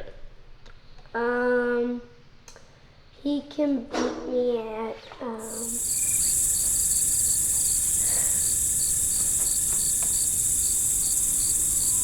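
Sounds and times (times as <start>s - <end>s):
high-pitched insect drone: 5.4s - 12.0s
insect chirps: 5.4s - 12.0s.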